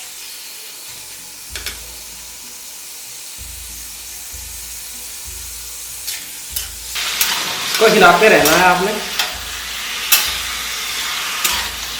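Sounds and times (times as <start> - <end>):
chicken sizzling in hot oil: 0.0 - 11.9
spatula scraping pan: 6.0 - 11.9.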